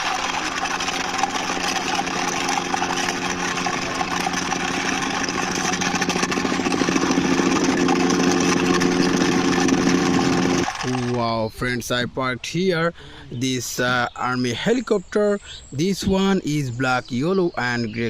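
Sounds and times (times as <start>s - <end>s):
engine-like drone with hiss: 0.0s - 11.1s.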